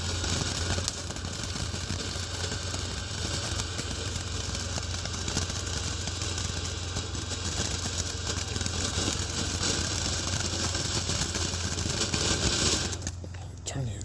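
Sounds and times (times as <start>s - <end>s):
firework fountain hissing: 0.0s - 13.3s
low steady hum: 13.0s - 14.0s.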